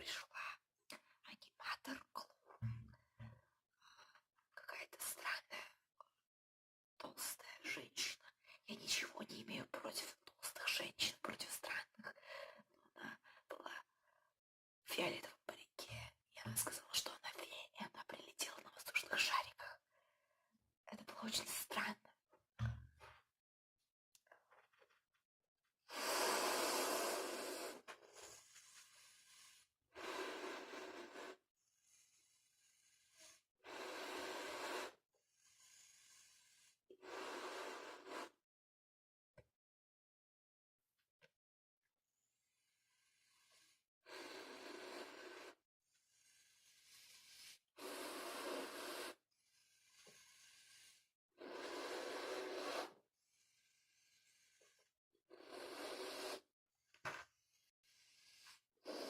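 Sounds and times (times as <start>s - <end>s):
quiet breathing: 11.2s - 14.4s, 15.1s - 22.0s, 25.9s - 38.4s, 42.3s - 59.0s
puffs of air into balloon: 25.9s - 38.4s, 42.7s - 56.5s.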